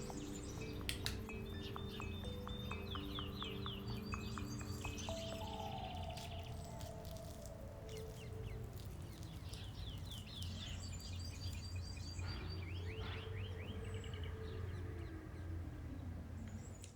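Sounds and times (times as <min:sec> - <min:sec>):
steady low hum: 0:00.0 - 0:16.5
small birds chirping: 0:00.0 - 0:16.9.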